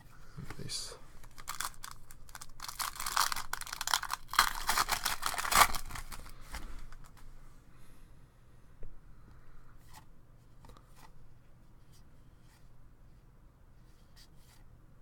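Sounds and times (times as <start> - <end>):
card pack wrapper tearing and crinkling: 1.2 - 7.1.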